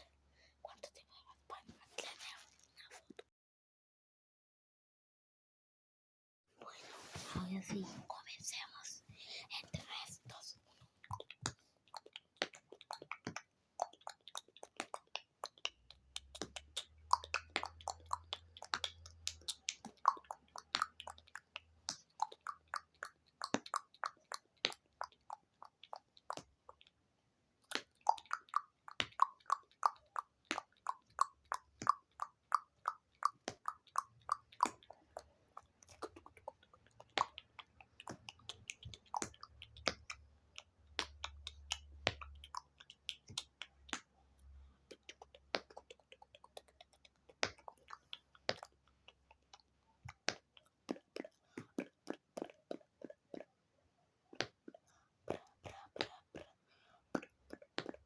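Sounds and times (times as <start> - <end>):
wet mouth clicks and pops: 11.0 - 27.0, 27.6 - 44.2, 44.9 - 53.6, 54.3 - 58.0.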